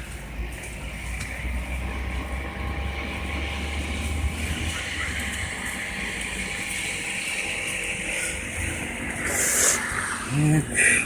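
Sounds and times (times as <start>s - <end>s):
low traffic rumble: 0.0s - 11.0s
tyres hissing on wet road: 0.0s - 11.0s.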